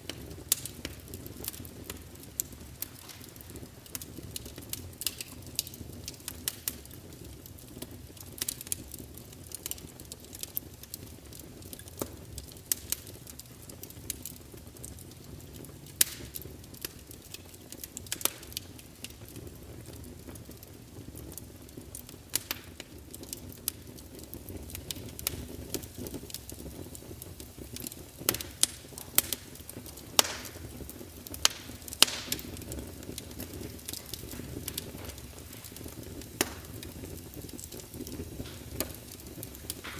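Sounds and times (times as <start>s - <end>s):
low rush of flame: 0.0s - 39.9s
wood fire crackling: 0.0s - 39.9s.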